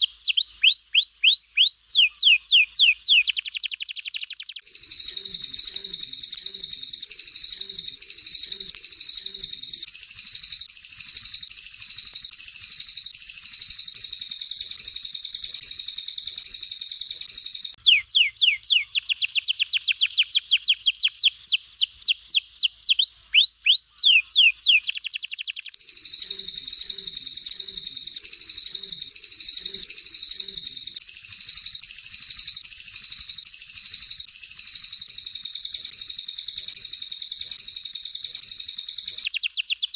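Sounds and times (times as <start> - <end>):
bird whistling descending notes: 0.0 - 14.8, 17.8 - 31.4
canary rolling song: 0.0 - 39.9.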